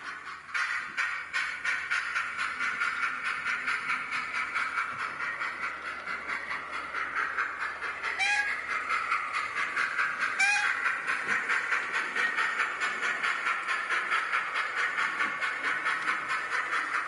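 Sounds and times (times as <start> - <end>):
model train steam chuffs: 0.0 - 17.0
short train whistle: 8.2 - 8.5, 10.4 - 10.8.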